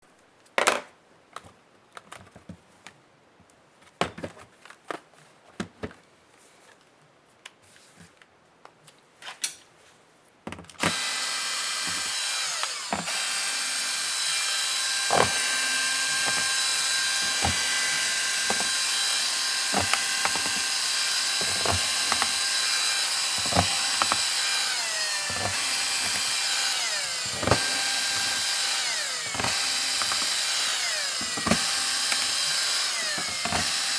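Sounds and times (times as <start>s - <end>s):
electric screwdriver motor whining: 10.8s - 33.9s.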